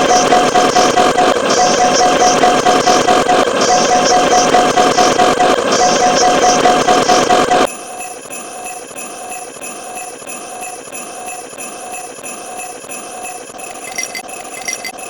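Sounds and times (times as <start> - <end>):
jingle bells shaking: 7.9 - 15.0.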